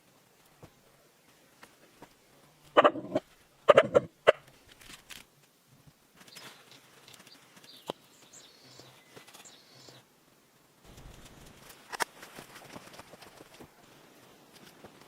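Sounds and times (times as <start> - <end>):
faint bird chirps: 6.3 - 10.0.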